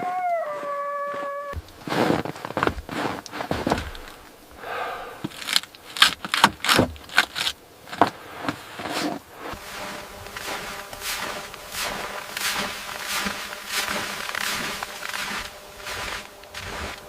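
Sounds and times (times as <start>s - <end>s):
irregular scraping and knocking: 5.2s - 17.0s.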